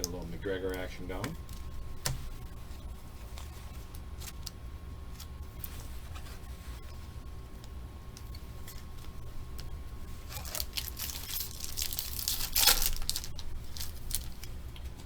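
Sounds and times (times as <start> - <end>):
steady low hum: 0.0 - 15.0
foil wrapper tearing and crinkling: 10.2 - 14.5.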